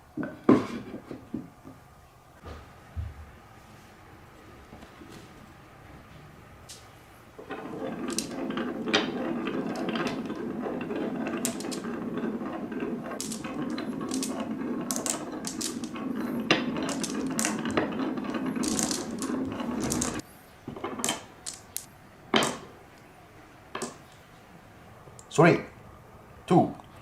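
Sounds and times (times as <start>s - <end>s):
marbles rolling down wooden track: 7.4s - 22.7s, 23.7s - 24.1s
marbles clicking together: 8.0s - 12.5s, 13.1s - 20.2s, 21.0s - 21.9s.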